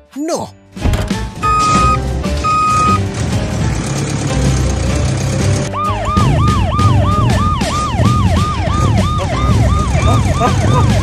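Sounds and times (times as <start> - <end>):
police siren yelping: 1.4 - 3.0, 5.7 - 11.0
second police siren: 5.8 - 11.0.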